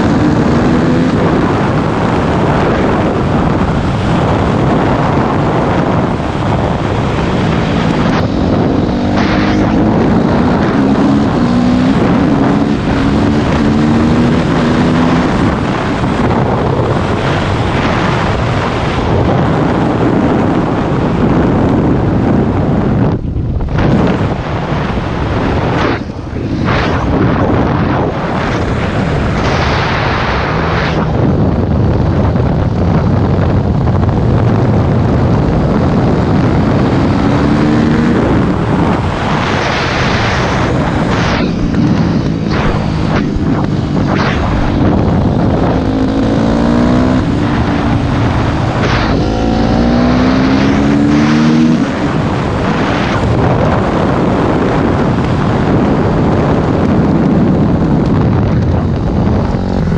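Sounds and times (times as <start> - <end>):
wind noise on microphone: 0.0 - 59.9
dirt bike engine revving: 6.6 - 15.6, 36.9 - 53.1.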